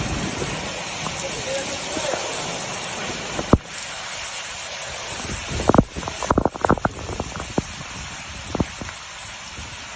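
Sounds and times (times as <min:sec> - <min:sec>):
wind buffeting microphone: 0:00.0 - 0:01.9, 0:04.8 - 0:09.9
storm wind and rain: 0:00.0 - 0:09.9.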